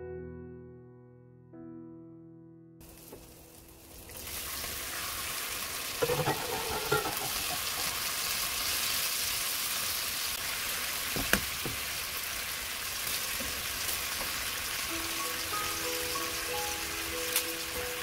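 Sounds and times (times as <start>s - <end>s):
soft music with held notes: 0.0s - 4.1s, 14.7s - 18.0s
meat sizzling in a frying pan: 2.8s - 18.0s.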